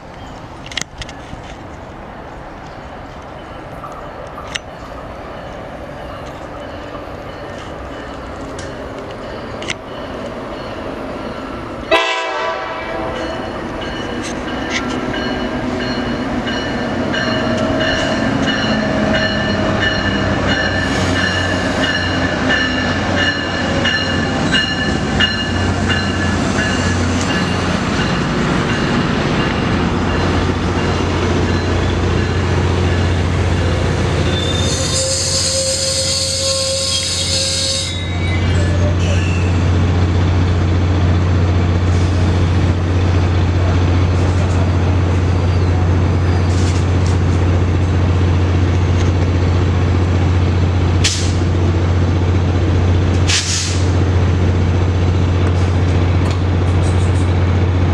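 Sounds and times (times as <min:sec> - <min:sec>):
train rumble: 0:00.0 - 0:57.9
train horn chord: 0:11.9 - 0:13.4
wheels squealing on rails: 0:13.0 - 0:40.5, 0:41.5 - 0:47.8.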